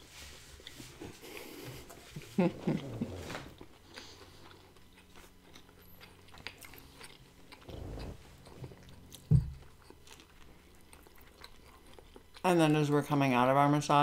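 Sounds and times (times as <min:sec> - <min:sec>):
chewing and mouth clicks: 0:03.6 - 0:13.1.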